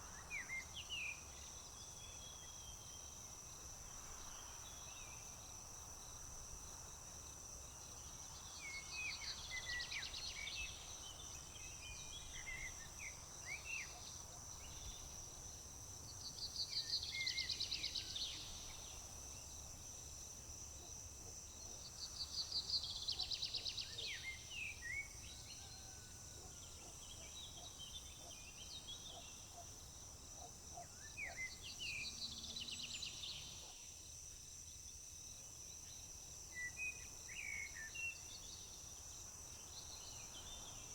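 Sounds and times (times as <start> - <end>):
crickets chorus: 0.0 - 40.9
songbird singing: 21.6 - 29.8, 30.8 - 33.7.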